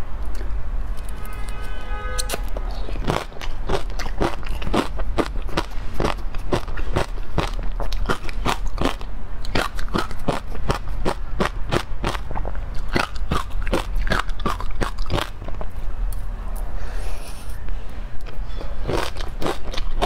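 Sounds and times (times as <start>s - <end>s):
crunchy ice cream chewing: 2.2s - 16.2s, 18.2s - 20.0s.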